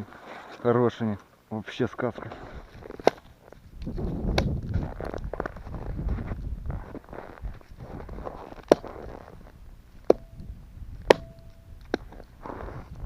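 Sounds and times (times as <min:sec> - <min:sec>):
footsteps crunching in frozen snow: 0:02.1 - 0:10.1, 0:11.9 - 0:13.0
sharp cracks with faint ring: 0:10.0 - 0:12.4.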